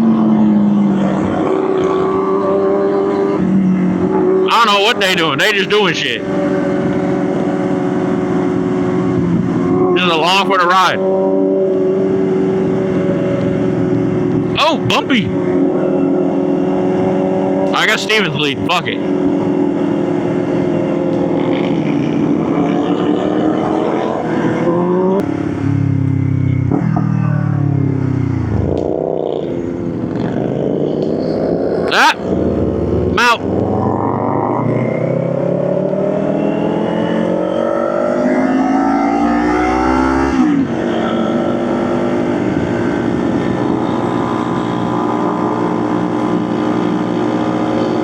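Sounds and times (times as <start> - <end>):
motorcycle engine accelerating: 11.0 - 17.8, 19.0 - 48.0.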